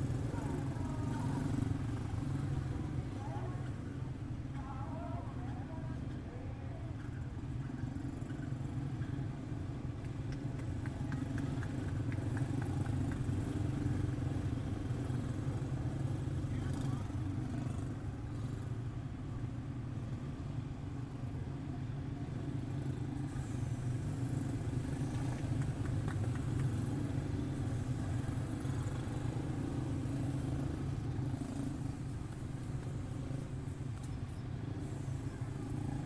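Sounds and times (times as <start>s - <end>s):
race car engines droning: 22.5s - 36.0s.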